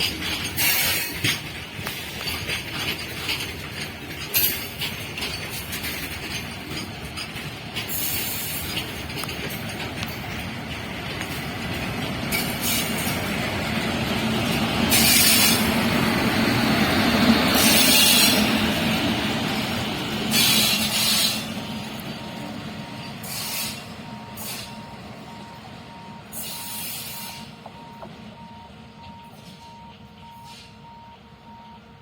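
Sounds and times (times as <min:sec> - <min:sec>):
train hissing: 0:00.0 - 0:02.5, 0:07.7 - 0:27.6, 0:30.3 - 0:30.8
train wheels rumbling on track: 0:00.0 - 0:32.0
faint steady beeping: 0:21.7 - 0:32.0.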